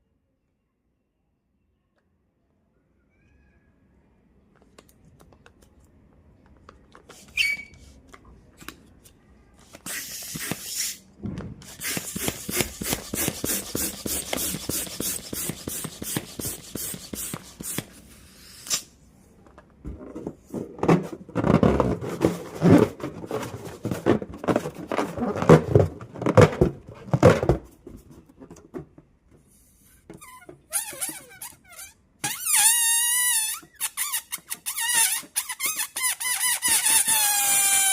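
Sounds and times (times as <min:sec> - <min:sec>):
balloon squeak: 0:07.2 - 0:07.9, 0:09.7 - 0:11.0, 0:11.6 - 0:18.9, 0:29.8 - 0:37.9
air fluttering from balloon neck: 0:11.6 - 0:18.9.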